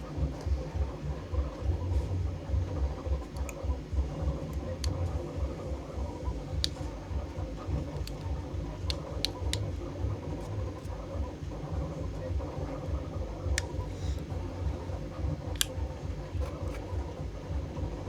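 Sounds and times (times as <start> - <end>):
printer pulsing hum: 0.0 - 18.0
vinyl being peeled: 0.0 - 18.0.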